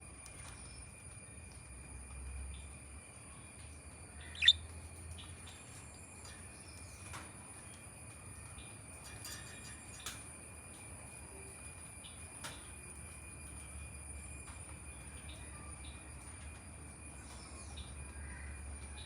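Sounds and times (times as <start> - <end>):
budgerigar chirping: 4.3 - 4.6.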